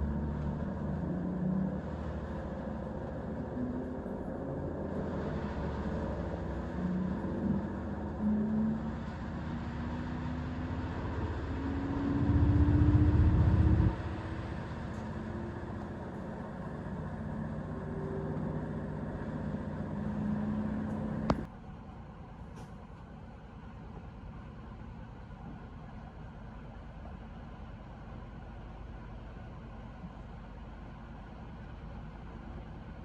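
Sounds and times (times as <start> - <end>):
hum rising in pitch: 0.0 - 21.5
low rumble: 0.0 - 21.5
diesel train engine and rails: 0.0 - 33.0.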